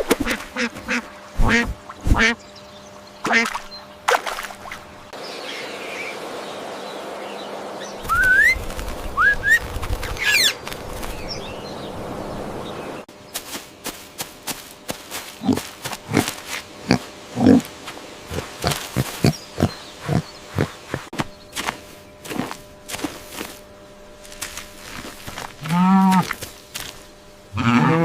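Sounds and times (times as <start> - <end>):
birds chirping: 0.2 - 27.9
quick sharp repeated bird sounds: 18.3 - 22.4.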